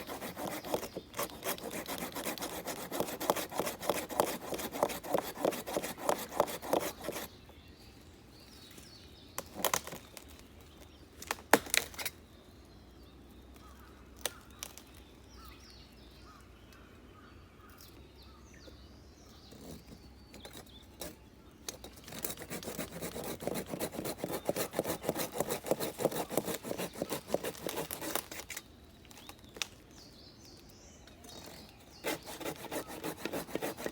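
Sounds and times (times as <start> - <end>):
hand saw cutting wood: 0.0 - 7.3, 21.9 - 28.6, 32.0 - 33.9.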